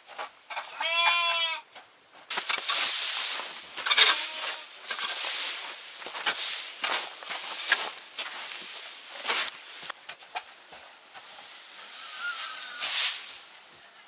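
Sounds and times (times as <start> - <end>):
rustling and scraping: 0.0 - 14.0
sheep bleating: 0.8 - 1.6, 4.0 - 4.8.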